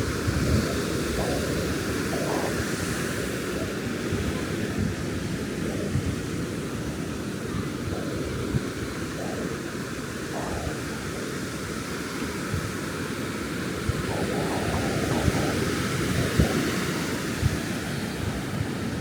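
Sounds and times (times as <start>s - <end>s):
ocean surf on a beach: 0.0s - 19.0s.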